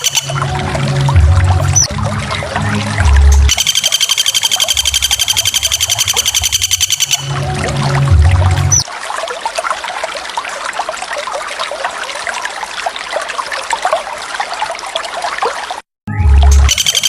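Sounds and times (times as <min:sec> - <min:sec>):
waterfall splashing: 0:00.0 - 0:14.9
loud deep-toned sound: 0:00.2 - 0:03.6, 0:04.7 - 0:08.8.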